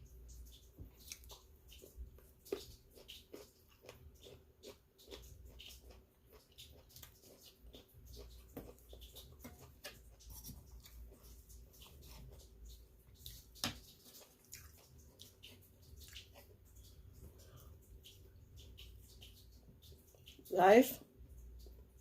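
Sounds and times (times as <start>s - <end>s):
soft chewing: 0.0s - 22.0s
wet mouth clicks: 0.6s - 9.4s.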